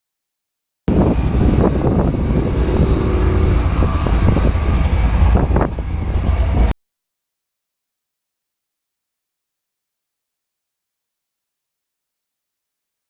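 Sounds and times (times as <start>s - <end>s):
car engine running: 0.9s - 6.7s
wind rumble on microphone: 0.9s - 6.7s.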